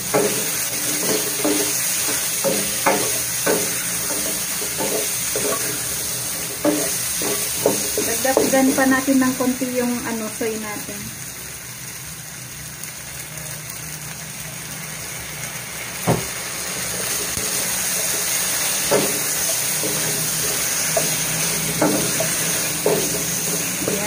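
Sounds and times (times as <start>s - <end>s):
food sizzling in a wok: 0.0s - 24.0s
wooden spatula knocking on pan: 0.1s - 5.6s, 6.6s - 8.8s, 18.9s - 20.3s, 21.0s - 24.0s
spatula stirring: 17.9s - 24.0s.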